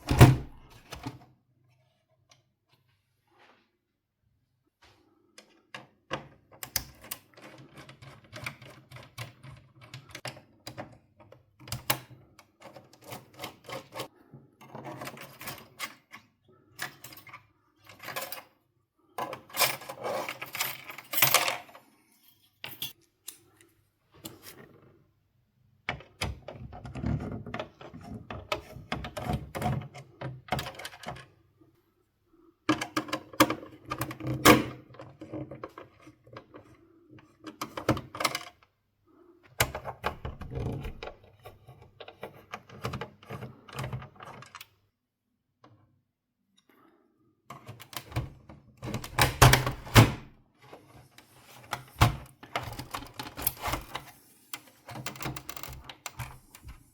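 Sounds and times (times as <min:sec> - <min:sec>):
plastic parts and screws clicking: 0:51.1 - 0:56.9.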